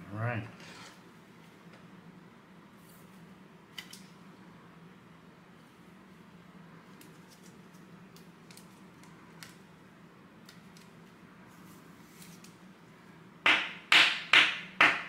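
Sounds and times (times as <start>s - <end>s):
low room hum: 0.0s - 15.0s
trading cards clicking and rustling: 7.0s - 9.7s.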